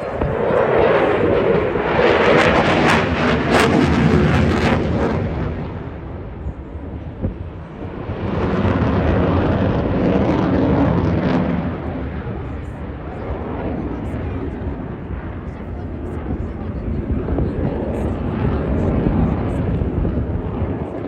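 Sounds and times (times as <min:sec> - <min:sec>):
fighter jet flying: 0:00.0 - 0:21.0.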